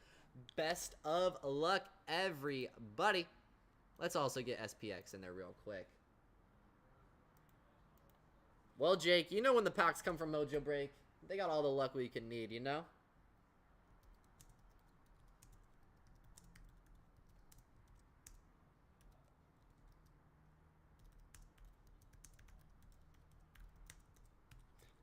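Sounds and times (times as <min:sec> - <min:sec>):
typing on keyboard: 0:14.0 - 0:18.4, 0:19.0 - 0:20.2, 0:20.9 - 0:25.0.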